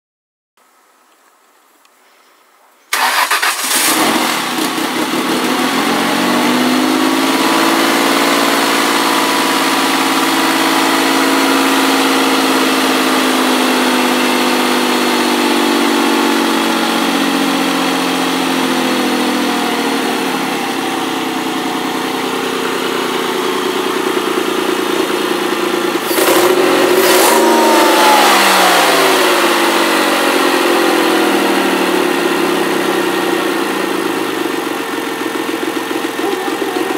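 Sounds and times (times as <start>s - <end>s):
engine starting and idling: 2.9s - 5.6s.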